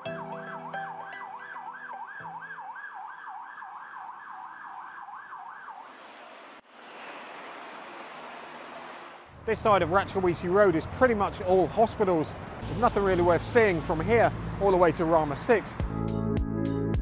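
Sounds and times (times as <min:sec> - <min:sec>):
siren yelping: 0:00.0 - 0:05.9
street traffic noise: 0:03.8 - 0:16.0.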